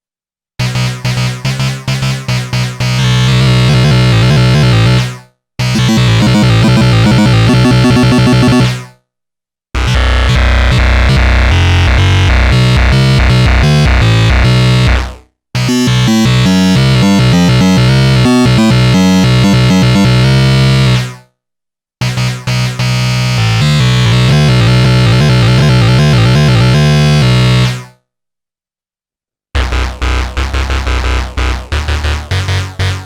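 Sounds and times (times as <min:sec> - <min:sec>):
synthesizer harsh lead notes: 0:03.1 - 0:05.0, 0:05.6 - 0:08.9, 0:09.8 - 0:20.2.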